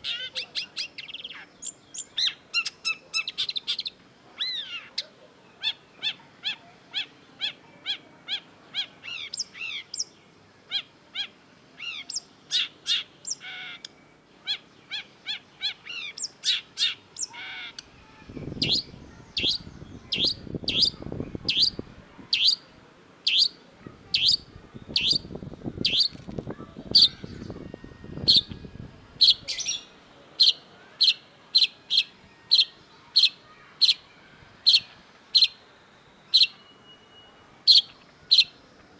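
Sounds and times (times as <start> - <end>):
shrike singing: 11.8 - 38.9.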